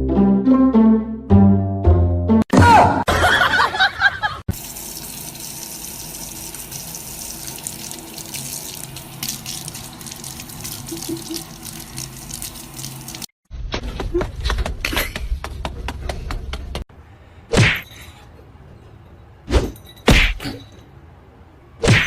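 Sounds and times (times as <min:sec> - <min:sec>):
running water: 0:04.5 - 0:13.3.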